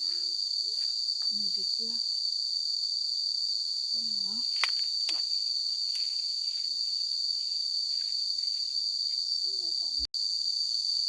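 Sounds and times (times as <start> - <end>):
insect chorus: 0.0 - 11.0.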